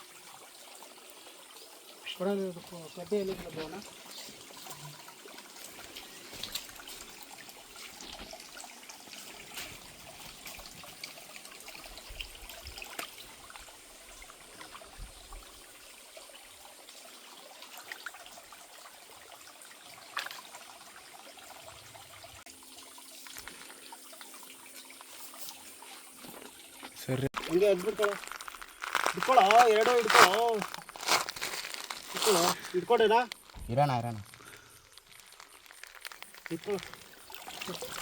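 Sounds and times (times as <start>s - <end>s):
stream water trickling: 0.0s - 38.0s
small splashes and ticks: 3.1s - 38.0s.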